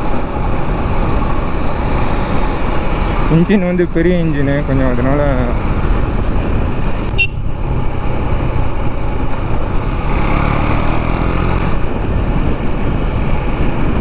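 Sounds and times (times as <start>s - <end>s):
motorcycle engine rumbling: 0.0s - 14.0s
engine blip: 7.1s - 7.5s.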